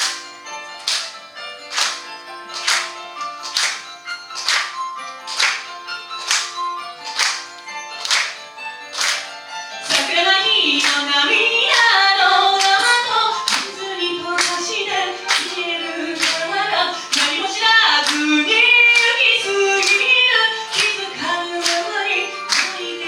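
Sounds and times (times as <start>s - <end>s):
hand claps: 0.0s - 23.0s
woman singing pop song: 9.9s - 23.0s.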